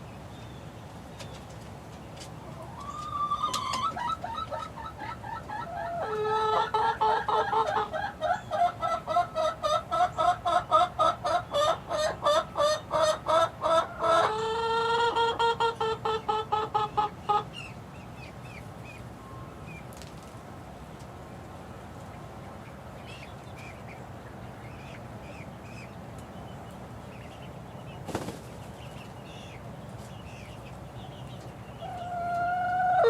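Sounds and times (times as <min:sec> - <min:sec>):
young chickens clucking: 0:00.1 - 0:33.0
drawn-out chicken call: 0:02.4 - 0:17.7, 0:31.8 - 0:33.0.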